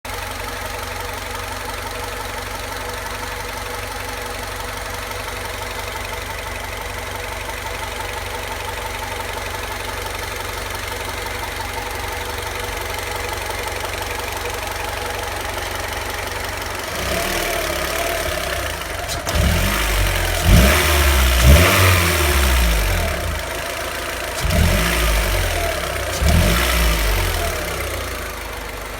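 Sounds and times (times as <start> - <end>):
car engine idling: 0.0 - 28.9
car engine revving: 13.4 - 28.9.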